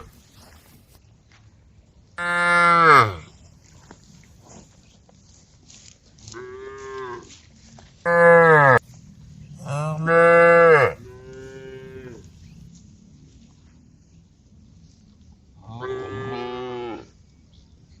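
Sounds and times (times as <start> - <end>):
cows mooing: 2.2 - 3.3, 8.1 - 8.8, 9.6 - 12.3, 15.7 - 17.1.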